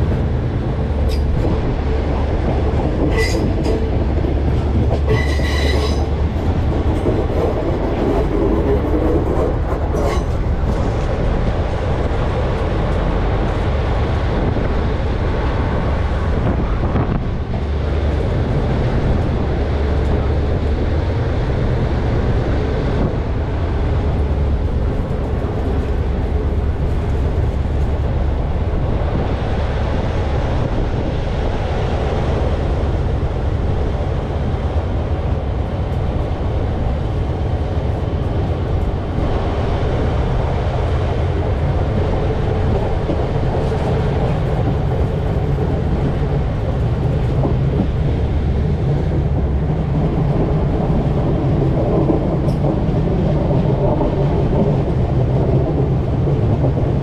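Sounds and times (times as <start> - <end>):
train wheels rumbling on rail: 0.0 - 57.0
high wheel squeal: 3.1 - 3.8, 5.0 - 6.2.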